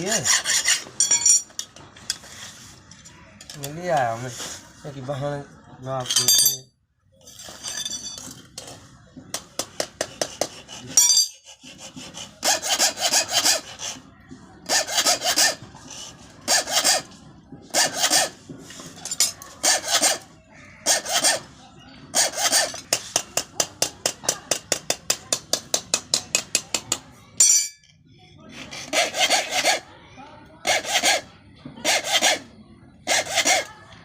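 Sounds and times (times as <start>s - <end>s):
file rasping on steel blade: 0.0s - 1.2s, 9.8s - 14.0s, 14.6s - 17.1s, 17.7s - 18.4s, 19.0s - 21.5s, 22.1s - 26.7s, 28.6s - 29.9s, 30.7s - 32.5s, 33.1s - 33.8s.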